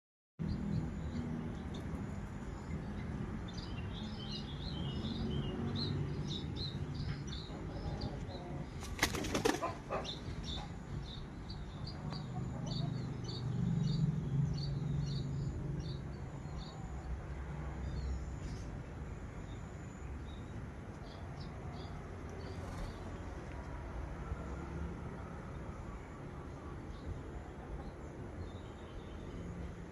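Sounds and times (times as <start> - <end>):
pigeon wings flapping: 8.8 - 9.8.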